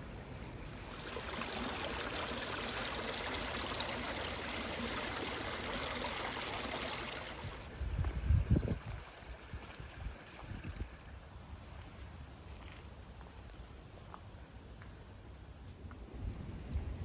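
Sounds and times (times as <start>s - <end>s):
brook water flowing: 0.6s - 11.5s.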